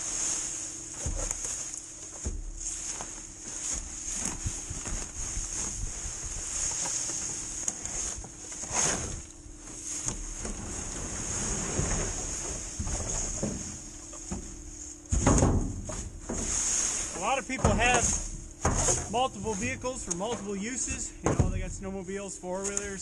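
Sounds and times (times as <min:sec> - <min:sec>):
faint steady hum: 0:00.0 - 0:23.0
leaves rustling and scraping: 0:00.0 - 0:23.0.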